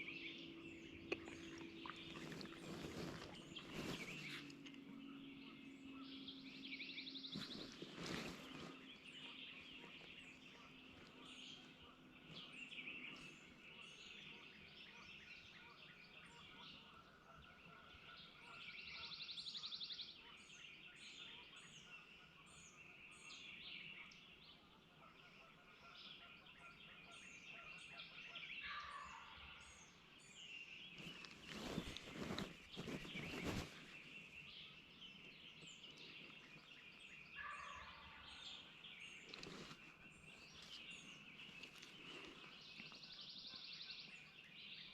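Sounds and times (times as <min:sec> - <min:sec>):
faint low hum: 0:00.0 - 0:19.6, 0:28.8 - 0:44.8
small birds chirping: 0:00.0 - 0:44.9.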